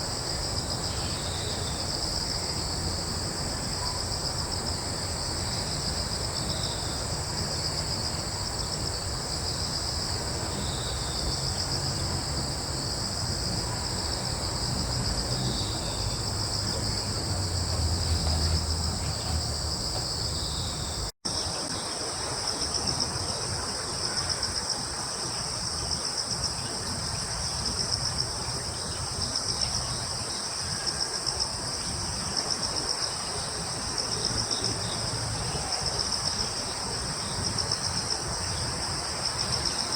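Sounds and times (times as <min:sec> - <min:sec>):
crickets trilling: 0:00.0 - 0:21.9, 0:22.5 - 0:39.9
low rumble: 0:10.2 - 0:21.1.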